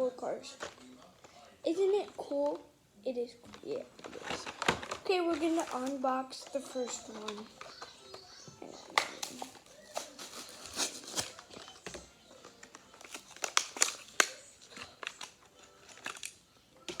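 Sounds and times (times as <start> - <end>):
cardboard and plastic tearing: 3.5 - 17.0.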